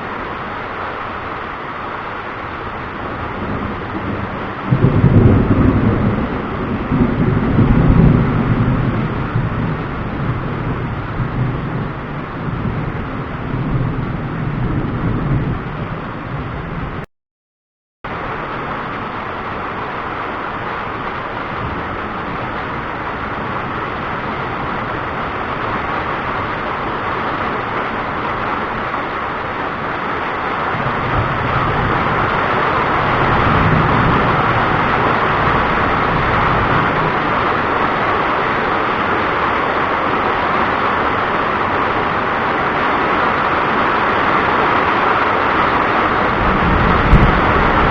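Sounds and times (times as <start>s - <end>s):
distant thunder rumbling: 3.1s - 17.0s, 21.5s - 47.9s
steady rushing noise: 18.1s - 47.9s.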